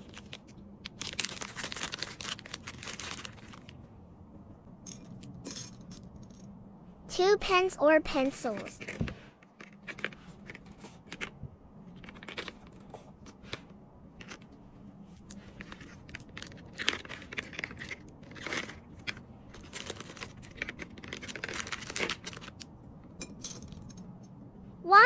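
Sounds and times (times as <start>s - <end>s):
plastic packaging rustling: 0.0s - 3.8s, 15.3s - 22.7s.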